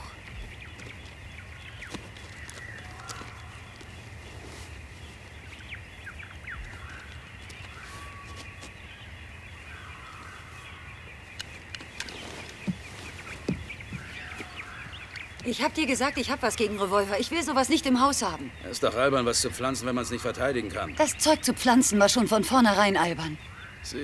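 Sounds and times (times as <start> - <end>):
bird calls and chirps: 0.0 - 24.0.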